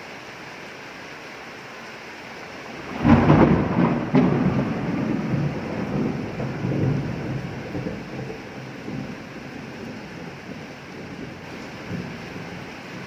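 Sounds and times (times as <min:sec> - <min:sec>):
rain hiss: 0:00.0 - 0:13.0
thunder clap and rumble: 0:02.8 - 0:13.0.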